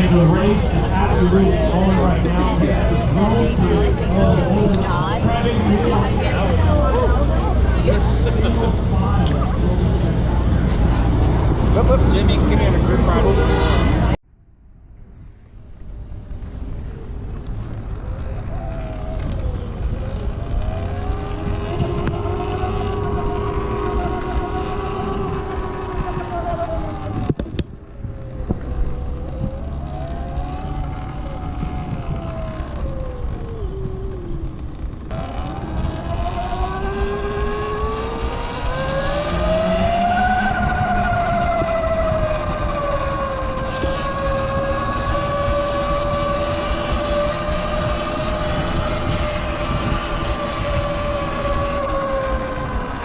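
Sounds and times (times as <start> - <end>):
wind rumble on microphone: 0.0 - 53.0
electric motor whining: 16.8 - 53.0.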